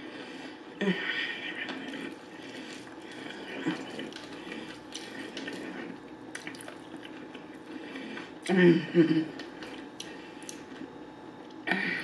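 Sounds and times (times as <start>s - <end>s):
wet chewing mouth sounds: 1.6s - 8.5s, 9.4s - 11.6s.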